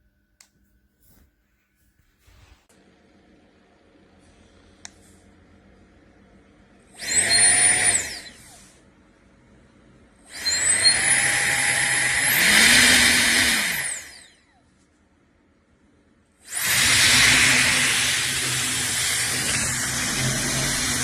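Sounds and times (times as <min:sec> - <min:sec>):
electric air duster whine: 0:10.4 - 0:14.3, 0:16.4 - 0:21.0.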